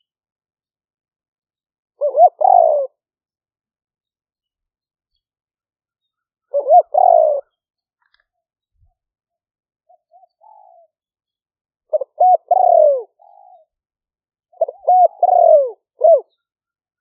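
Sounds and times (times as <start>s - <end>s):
dove cooing: 2.0s - 3.0s, 6.5s - 7.6s, 9.9s - 11.0s, 11.9s - 13.8s, 14.5s - 16.5s.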